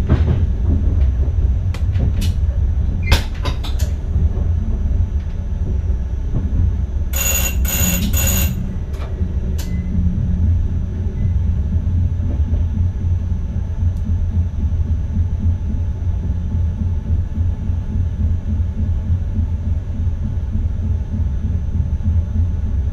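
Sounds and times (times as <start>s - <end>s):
train rumbling on rails: 0.0s - 22.9s
short ringing tones: 7.2s - 8.8s.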